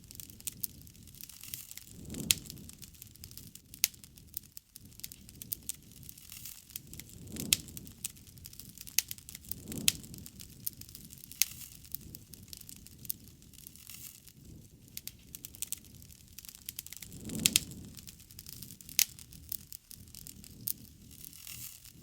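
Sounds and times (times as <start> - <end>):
burning wood popping: 0.0 - 22.0
low swells of flame: 0.0 - 22.0
wood fire crackling: 0.0 - 22.0.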